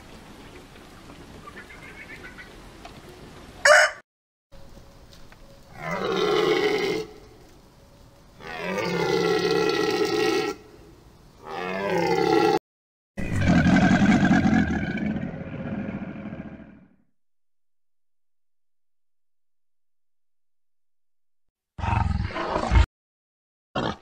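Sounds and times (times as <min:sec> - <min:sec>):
alligator rumbling call: 0:05.7 - 0:07.3, 0:08.4 - 0:10.7, 0:13.2 - 0:16.9.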